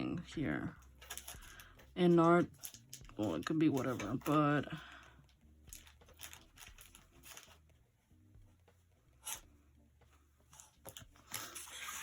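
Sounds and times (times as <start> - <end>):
art supplies rubbing and scratching: 0.0 - 4.8, 9.1 - 9.6, 10.4 - 12.0.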